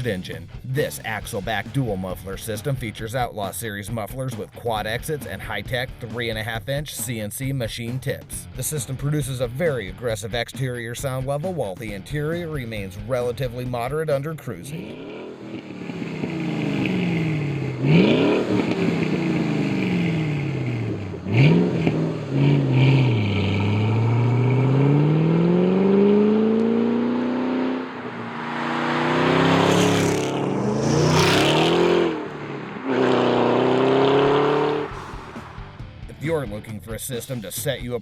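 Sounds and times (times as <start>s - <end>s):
car engine revving: 14.6s - 36.3s.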